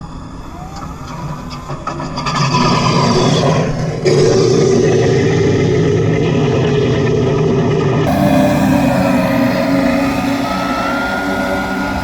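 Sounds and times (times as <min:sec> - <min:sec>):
simulated piston engine sound: 0:08.1 - 0:12.0.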